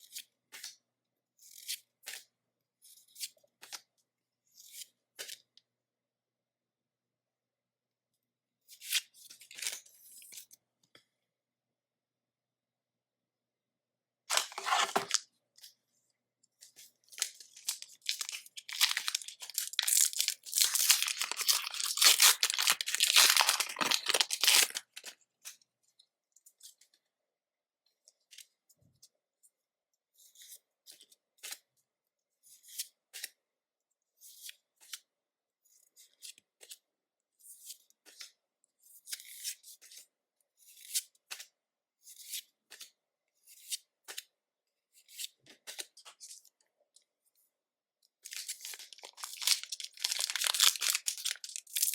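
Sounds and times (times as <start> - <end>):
cards being handled: 14.3 - 15.2, 17.1 - 25.1, 48.3 - 51.9
foil pack tearing and crinkling: 14.3 - 15.2, 17.2 - 25.0, 48.3 - 51.9.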